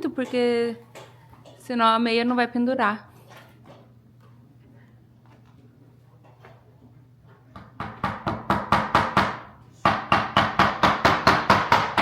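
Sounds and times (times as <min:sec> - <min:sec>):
hammer tapping nails: 0:07.5 - 0:12.0.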